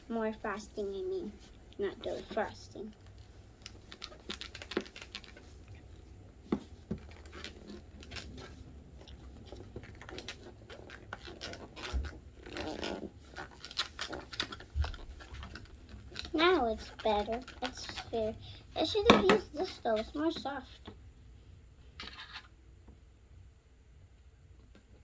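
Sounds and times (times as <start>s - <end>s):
small scrapes: 0.8s - 20.6s.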